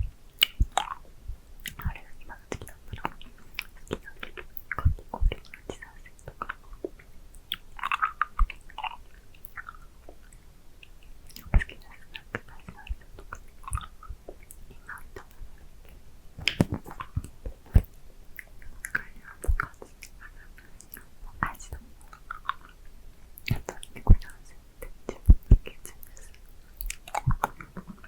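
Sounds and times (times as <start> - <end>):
wet mouth clicks and smacks: 0.3 - 1.0, 1.6 - 22.8, 23.4 - 28.0.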